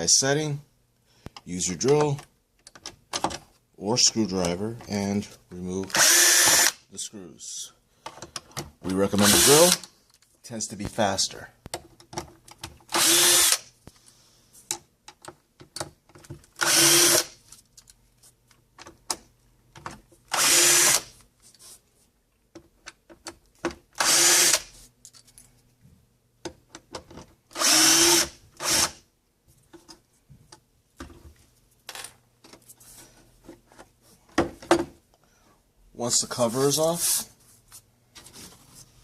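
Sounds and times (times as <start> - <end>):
power drill bursts: 5.9 - 6.8, 9.2 - 9.8, 13.0 - 13.6, 16.6 - 17.3, 20.4 - 21.1, 24.0 - 24.7, 27.6 - 29.0.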